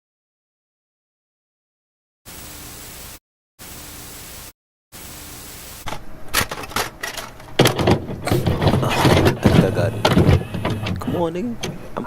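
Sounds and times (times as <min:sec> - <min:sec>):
steady hiss bursts: 0:02.3 - 0:05.9
sharp clicks and knocks: 0:05.8 - 0:11.9.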